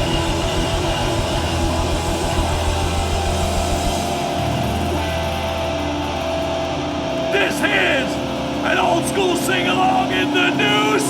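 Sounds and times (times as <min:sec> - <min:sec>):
electric guitars and bass sustained: 0:00.0 - 0:11.0
low bass drone: 0:00.0 - 0:11.0.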